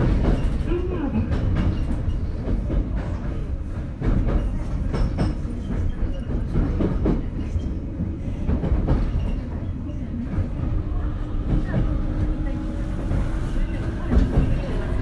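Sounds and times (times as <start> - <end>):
train low rumble: 0.0 - 15.0
wheels clacking over track: 10.2 - 15.0.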